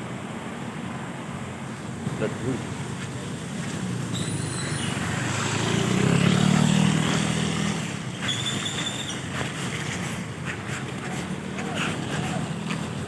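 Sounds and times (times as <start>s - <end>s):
motor vehicle passing: 3.0s - 13.0s.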